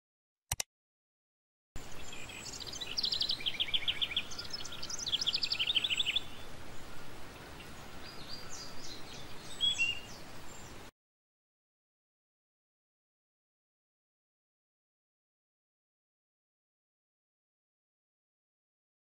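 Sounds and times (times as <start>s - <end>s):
background hiss: 1.8s - 10.9s
bird chirping trills: 1.8s - 10.9s.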